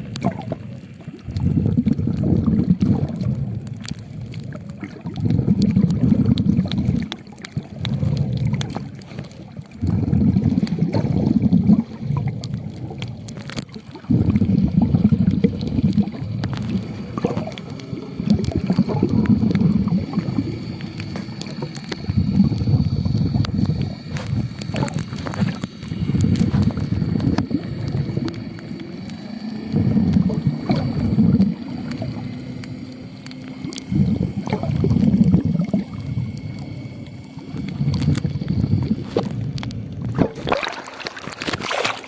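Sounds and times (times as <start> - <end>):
underwater bubbling gurgles: 0.0 - 42.0
small clicks: 2.8 - 9.7, 12.2 - 13.9, 15.3 - 29.2, 30.0 - 40.3.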